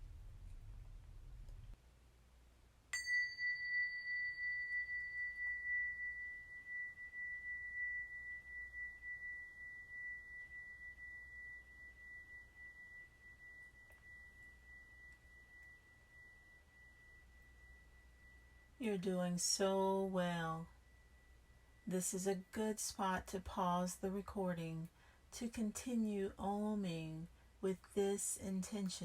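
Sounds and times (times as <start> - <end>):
small metal bell ringing: 3.0 - 18.8.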